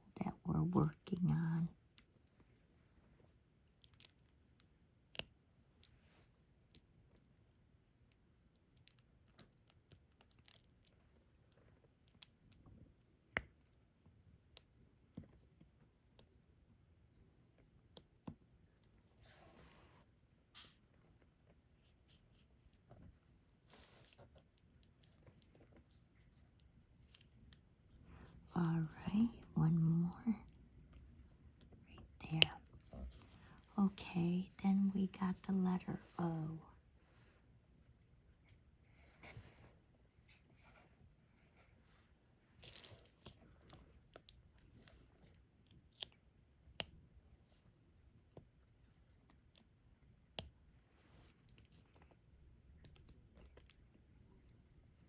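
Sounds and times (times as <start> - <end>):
soft rustle: 18.9 - 45.6, 50.6 - 52.4
small pen clicks and taps: 50.3 - 50.6.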